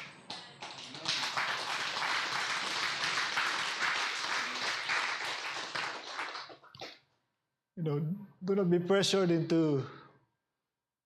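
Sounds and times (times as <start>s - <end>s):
congregation applauding: 0.0s - 7.0s.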